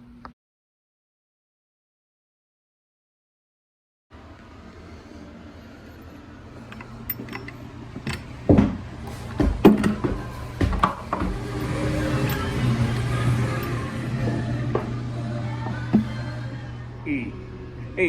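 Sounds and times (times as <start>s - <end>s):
steady low hum: 4.2s - 18.0s
irregular knocks and clanks: 6.6s - 13.1s.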